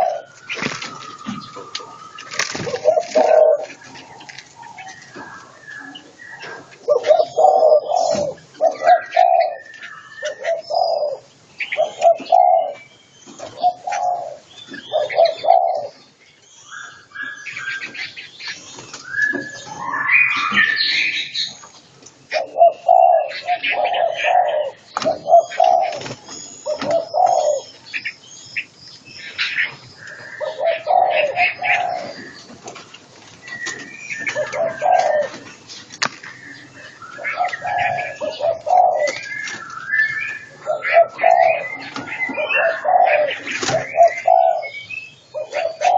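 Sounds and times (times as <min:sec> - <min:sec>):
doves cooing: 0:00.0 - 0:21.6, 0:22.2 - 0:45.9
songbird whistles and chirps: 0:00.2 - 0:02.8, 0:04.8 - 0:11.1, 0:16.4 - 0:21.8, 0:33.4 - 0:45.8.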